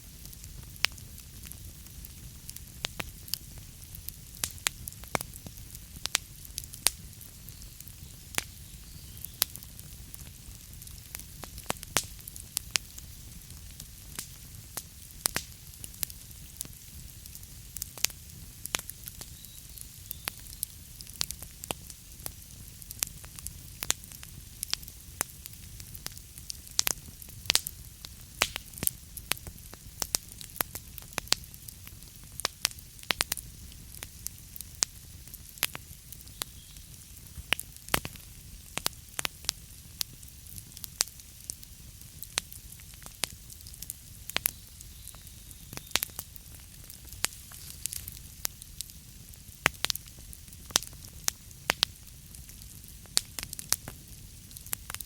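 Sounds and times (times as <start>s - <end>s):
logs crackling and popping: 0.0s - 55.0s
low rumble of flames: 0.0s - 55.0s.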